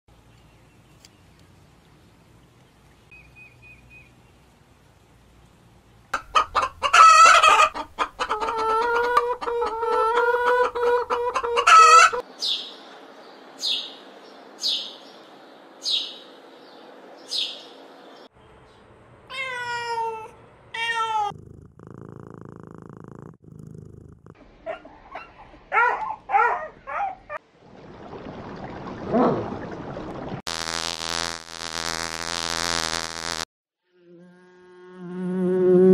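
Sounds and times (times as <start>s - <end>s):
clucking: 6.2s - 12.2s
cat meowing: 19.3s - 21.4s
bumblebee buzzing: 30.5s - 35.9s.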